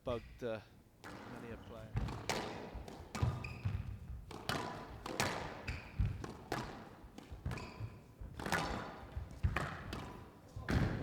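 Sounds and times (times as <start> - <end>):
squash ball hitting racquets and walls: 1.0 - 11.0
court shoes squeaking: 3.2 - 4.1, 5.6 - 6.2, 7.4 - 8.0.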